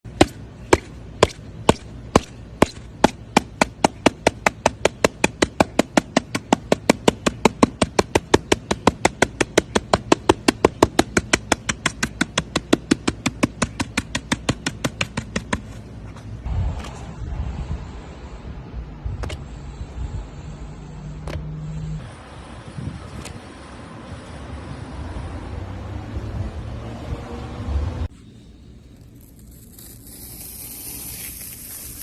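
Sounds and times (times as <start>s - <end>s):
rapid sharp knocks: 0.2s - 15.6s.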